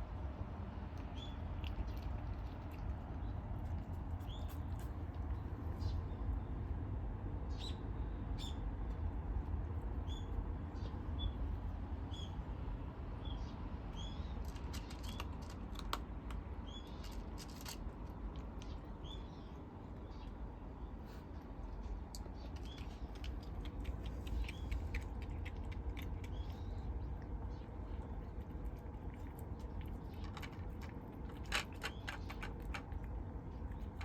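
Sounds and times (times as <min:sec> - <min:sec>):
kittens crunching dry food: 0:00.2 - 0:05.8, 0:14.2 - 0:20.5, 0:21.1 - 0:34.0.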